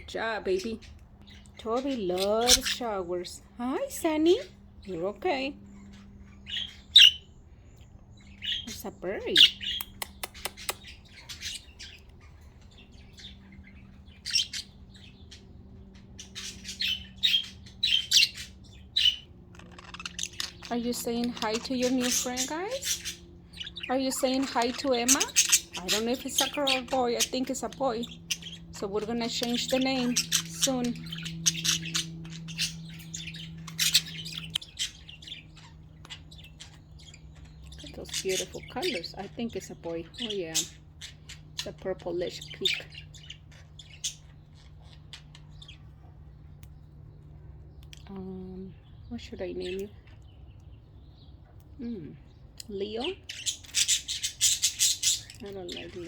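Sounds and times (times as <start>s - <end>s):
budgerigars chirping: 0.0s - 47.8s, 52.3s - 56.0s
steady low hum: 0.0s - 56.0s.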